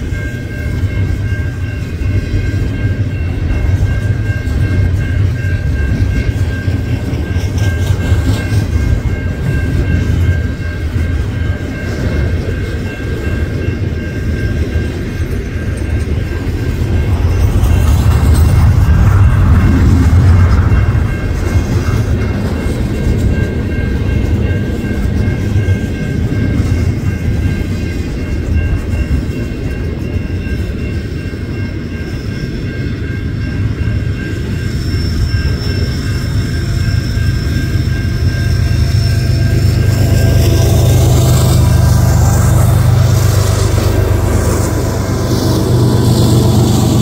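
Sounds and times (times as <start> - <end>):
freight train wheels rumbling: 0.0 - 47.0.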